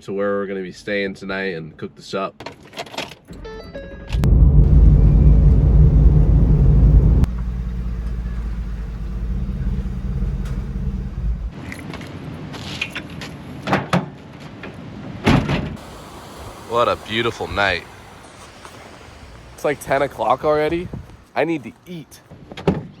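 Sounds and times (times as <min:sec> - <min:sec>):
truck engine idling: 0:04.3 - 0:11.6, 0:15.8 - 0:21.3.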